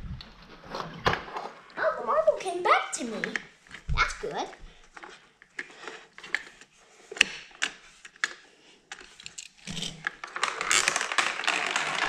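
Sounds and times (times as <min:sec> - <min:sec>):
toys clattering on plastic track: 0:07.2 - 0:12.0.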